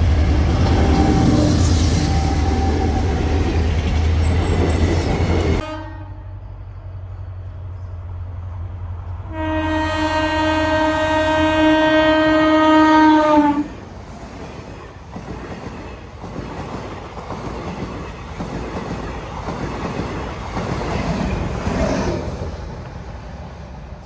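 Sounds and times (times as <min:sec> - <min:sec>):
train wheels rumbling and clattering: 0:00.0 - 0:05.6, 0:13.8 - 0:24.0
train horn: 0:00.6 - 0:03.0, 0:05.6 - 0:06.5, 0:09.2 - 0:13.8.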